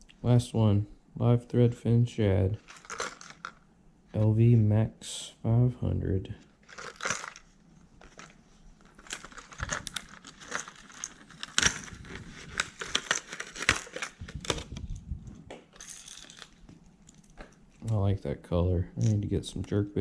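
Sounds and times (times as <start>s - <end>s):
plastic packaging crinkling: 2.6s - 3.6s, 6.5s - 15.1s, 15.7s - 17.9s.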